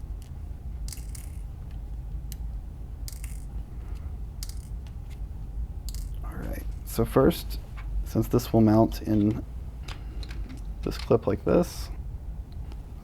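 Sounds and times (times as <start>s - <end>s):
steady low hum: 0.0s - 13.0s
small hardware clicking and clinking: 0.9s - 1.4s, 3.1s - 3.5s, 4.4s - 4.8s, 5.9s - 6.2s.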